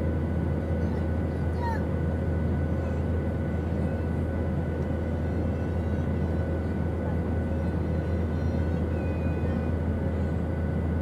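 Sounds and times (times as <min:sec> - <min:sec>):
airplane drone: 0:00.0 - 0:11.0.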